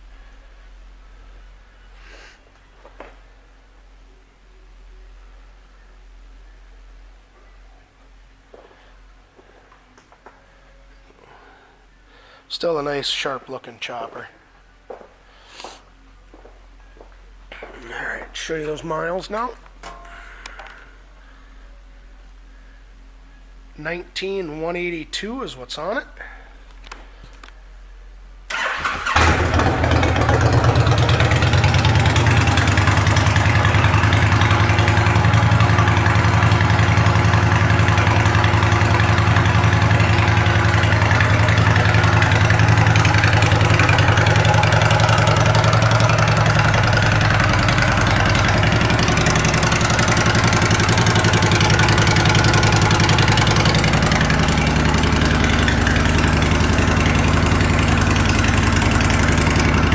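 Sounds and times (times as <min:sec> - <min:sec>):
motorcycle engine idling: 0:28.5 - 0:59.9.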